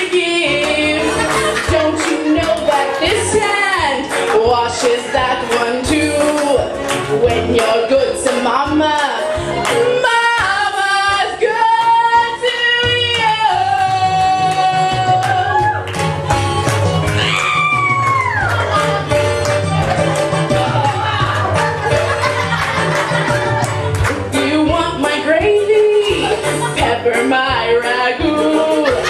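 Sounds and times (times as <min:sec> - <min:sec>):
woman singing: 0:00.0 - 0:15.8, 0:24.3 - 0:29.0
band accompaniment: 0:00.0 - 0:29.0.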